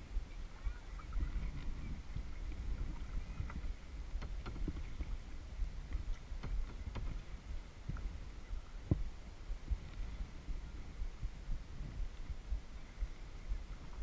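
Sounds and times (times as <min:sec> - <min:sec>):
low rumble: 0:00.0 - 0:14.0
paddle knocks and splashes: 0:01.4 - 0:08.1.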